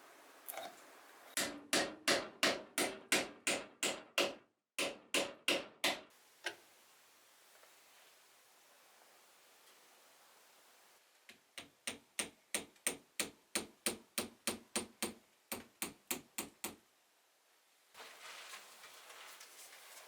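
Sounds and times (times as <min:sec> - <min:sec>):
hammer driving nail into wood: 0:01.4 - 0:06.1.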